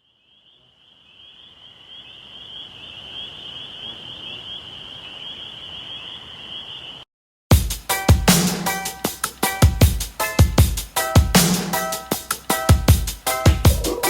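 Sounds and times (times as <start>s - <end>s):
high-pitched chirping chorus: 13.7s - 14.0s.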